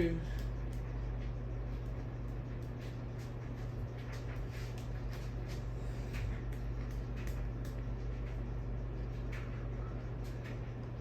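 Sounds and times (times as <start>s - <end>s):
ceiling fan motor humming: 0.0s - 11.0s.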